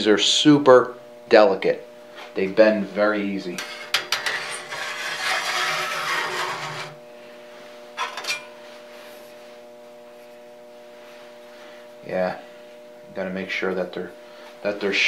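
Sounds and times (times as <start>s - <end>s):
steady electrical hum: 0.0s - 15.0s
sheet metal scraping and rubbing: 3.6s - 7.0s.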